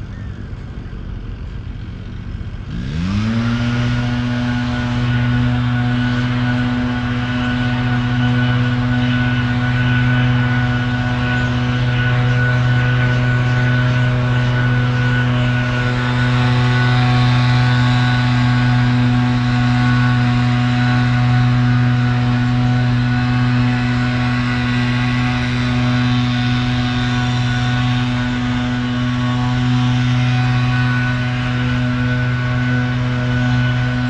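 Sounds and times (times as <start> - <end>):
steady mechanical hum: 0.0 - 34.0.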